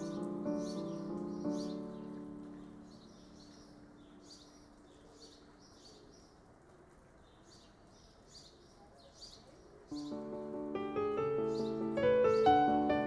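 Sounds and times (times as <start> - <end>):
background music: 0.0 - 3.6, 10.0 - 13.0.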